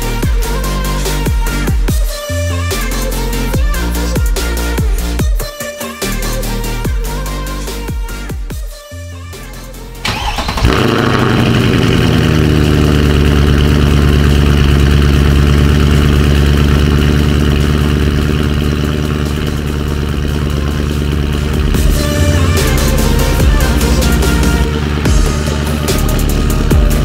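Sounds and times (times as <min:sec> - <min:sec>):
car engine idling: 0:00.0 - 0:05.4, 0:09.3 - 0:27.0
engine starter cranking: 0:10.0 - 0:13.4.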